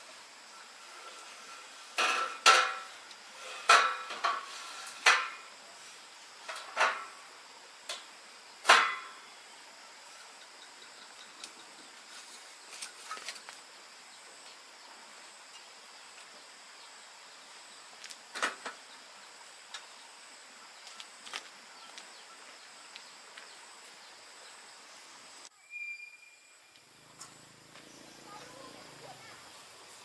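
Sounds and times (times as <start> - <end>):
high-pitched hiss: 0.0 - 21.8, 22.4 - 30.0.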